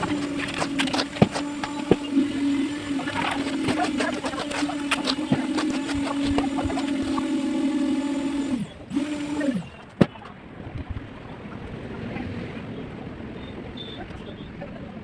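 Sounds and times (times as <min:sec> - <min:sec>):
machine motor humming: 0:00.0 - 0:09.9.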